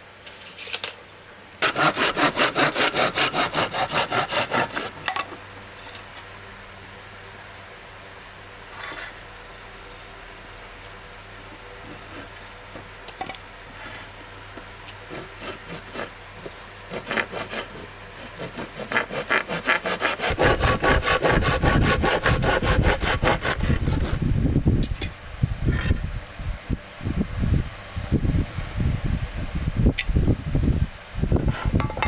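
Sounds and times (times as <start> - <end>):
hand saw cutting wood: 1.6 - 5.2, 11.8 - 12.4, 14.9 - 24.2, 31.3 - 32.0.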